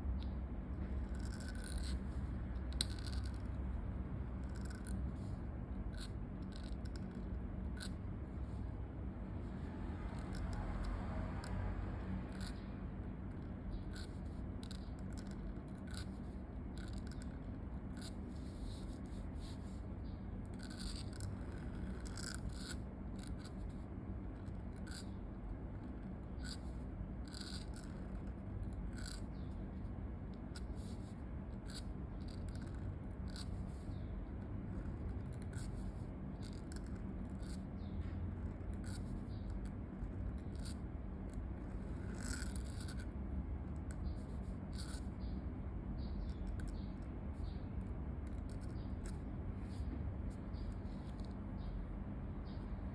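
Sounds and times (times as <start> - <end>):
pen scratching on paper: 0.8 - 3.6, 4.2 - 8.7, 9.6 - 19.8, 20.4 - 25.2, 25.8 - 29.5, 30.5 - 34.1, 34.7 - 37.6, 38.3 - 43.2, 43.9 - 45.1.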